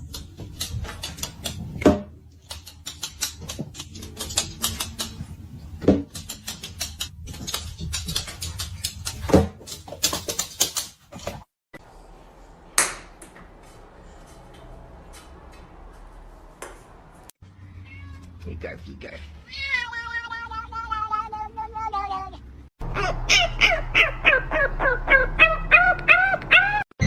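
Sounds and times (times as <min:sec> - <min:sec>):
irregular clicking and tapping: 0:00.0 - 0:05.3, 0:05.9 - 0:11.4.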